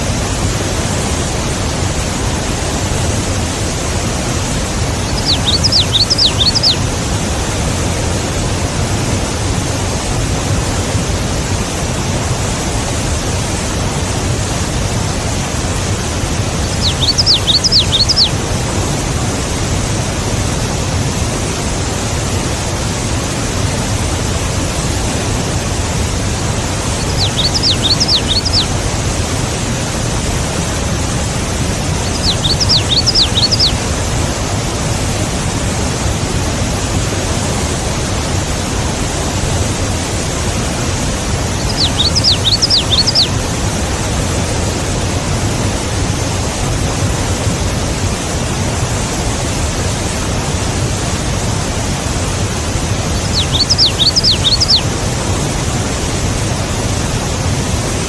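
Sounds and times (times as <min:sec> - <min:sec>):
rushing hiss outdoor noise: 0:00.0 - 0:58.0
small bird chirping: 0:05.0 - 0:06.8, 0:16.6 - 0:18.4, 0:27.0 - 0:28.7, 0:32.0 - 0:33.8, 0:41.6 - 0:43.4, 0:53.1 - 0:54.9.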